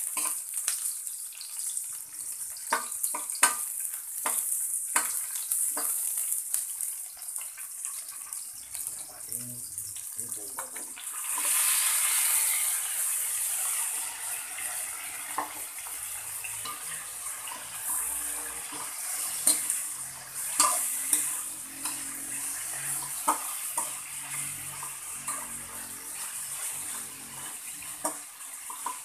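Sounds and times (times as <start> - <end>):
meat sizzling in hot oil: 0.0 - 29.0
metal spatula scraping a wok: 11.1 - 29.0.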